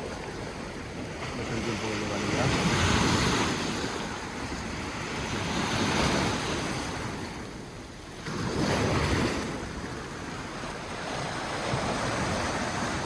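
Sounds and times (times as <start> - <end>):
sea waves breaking on shore: 0.0 - 13.0
wind buffeting microphone: 2.4 - 13.0.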